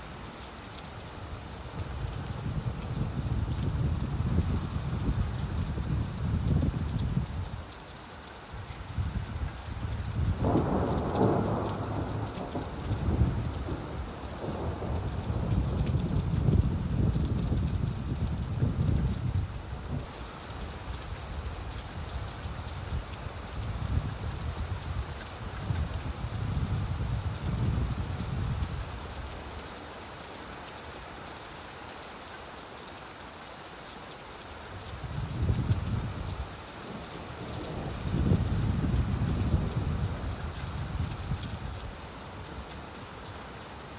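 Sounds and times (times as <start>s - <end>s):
steady rain: 0.0s - 43.9s
low rolling thunder: 10.1s - 20.1s, 35.1s - 41.8s.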